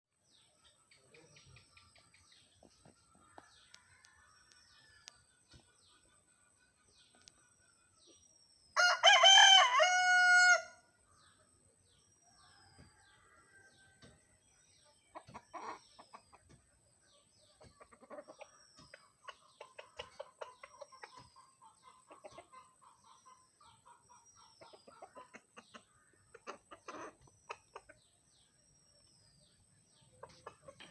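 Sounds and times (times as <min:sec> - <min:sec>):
rooster crowing: 0:08.8 - 0:10.8
soft clucking: 0:17.5 - 0:28.2, 0:30.0 - 0:30.9.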